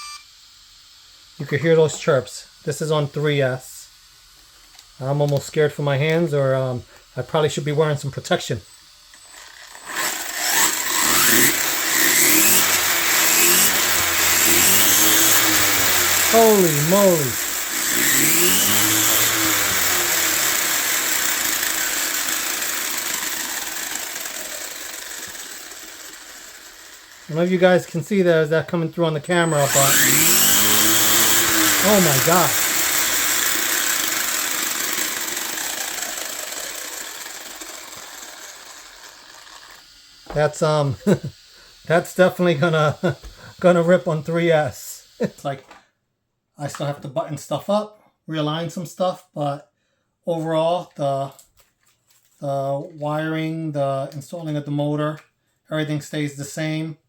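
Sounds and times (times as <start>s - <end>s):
electric motor whining: 9.1s - 27.9s, 29.2s - 41.3s.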